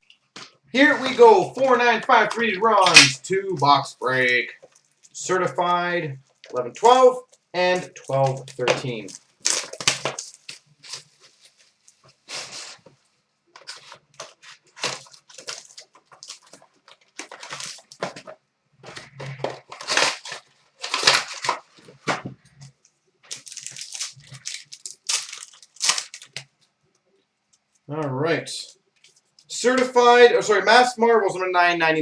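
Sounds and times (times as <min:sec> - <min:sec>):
card pack wrapping tearing: 0:00.8 - 0:03.1, 0:06.8 - 0:11.7, 0:12.3 - 0:12.8, 0:13.6 - 0:22.3, 0:23.3 - 0:26.5.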